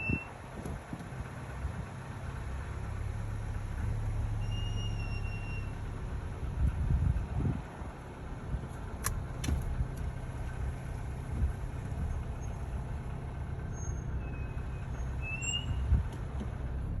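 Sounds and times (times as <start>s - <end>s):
car road rumble: 0.0s - 17.0s
high brake squeal: 4.3s - 5.9s, 13.7s - 16.0s
small thump: 9.4s - 9.7s.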